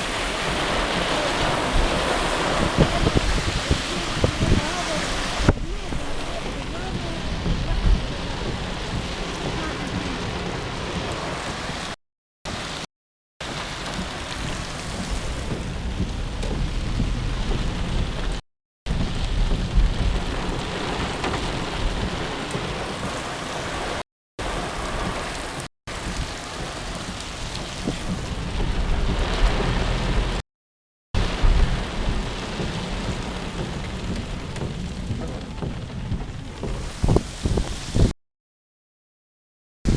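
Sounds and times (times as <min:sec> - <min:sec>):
heavy rain pouring: 0:00.0 - 0:30.4, 0:31.2 - 0:38.2
low rumbling: 0:13.9 - 0:23.2, 0:26.0 - 0:30.4, 0:31.2 - 0:38.1.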